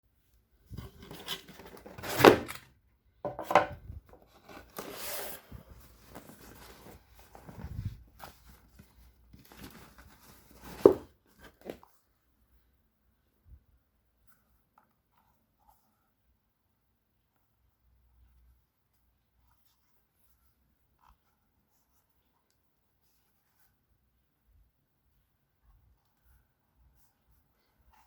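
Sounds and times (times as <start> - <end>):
box scrapes and knocks: 0.7 - 2.6, 10.3 - 11.8
paper wrapping rustling: 4.2 - 11.8.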